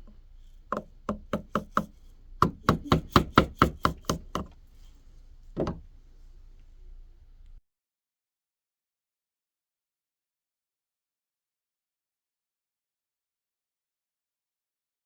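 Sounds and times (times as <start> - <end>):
tool knocking on wood: 0.7 - 4.6, 5.6 - 5.8.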